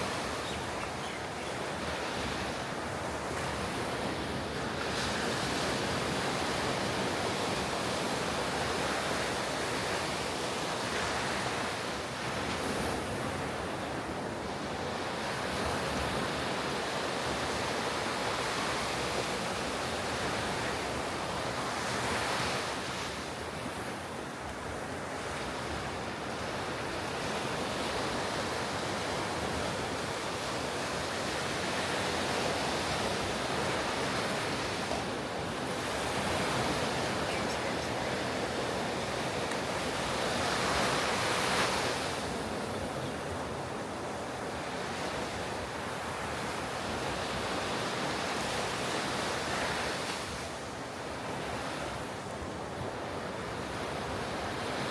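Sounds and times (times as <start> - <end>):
waves breaking on beach: 0.0 - 54.9.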